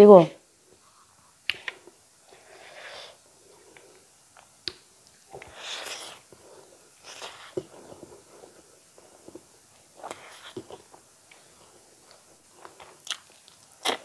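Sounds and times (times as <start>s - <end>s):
chewing and smacking: 10.0s - 14.0s.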